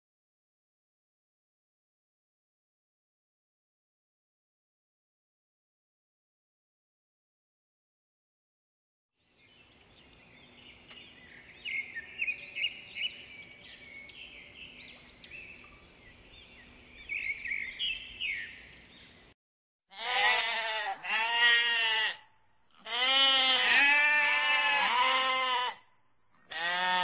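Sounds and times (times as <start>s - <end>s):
sparrows chirping: 9.2s - 19.3s
lamb bleating loudly: 19.9s - 22.2s, 22.8s - 25.8s, 26.4s - 27.0s.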